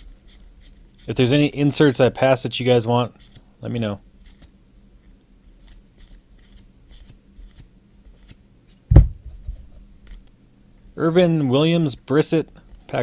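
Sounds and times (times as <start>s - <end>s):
cards being flipped through: 4.2s - 8.4s
dull thump: 8.9s - 9.7s.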